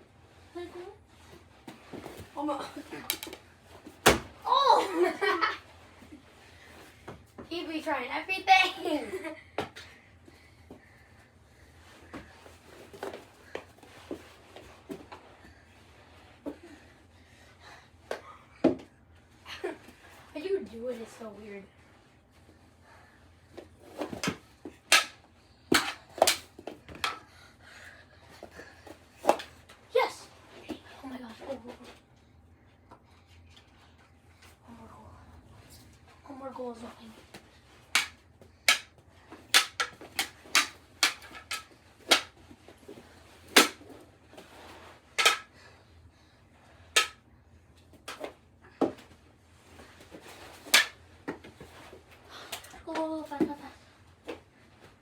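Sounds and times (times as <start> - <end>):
hockey sticks and ball clacking: 3.0 - 4.4, 23.9 - 27.3, 37.2 - 45.6, 46.9 - 47.3, 50.0 - 53.7.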